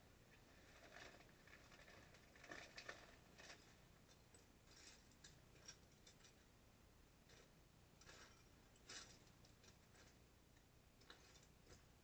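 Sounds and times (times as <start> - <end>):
plastic toy bricks rattling: 0.6 - 6.4.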